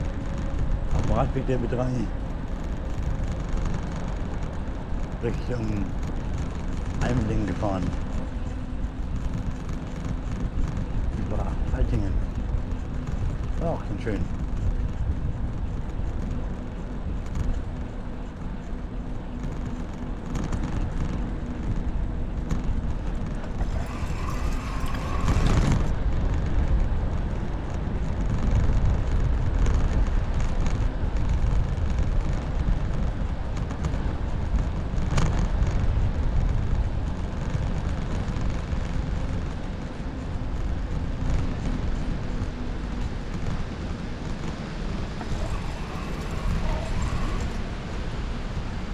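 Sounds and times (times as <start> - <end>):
bicycle tyre noise: 0.0 - 48.9
wind on microphone: 0.0 - 48.9.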